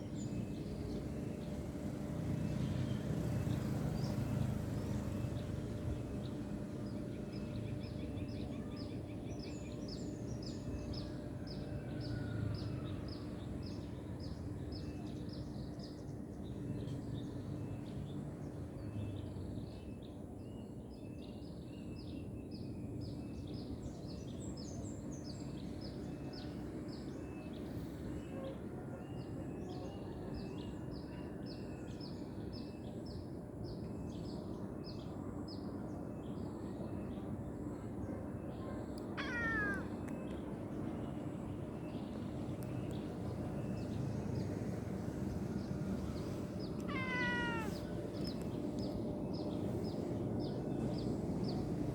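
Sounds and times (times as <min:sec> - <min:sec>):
small birds chirping: 0:38.6 - 0:51.9.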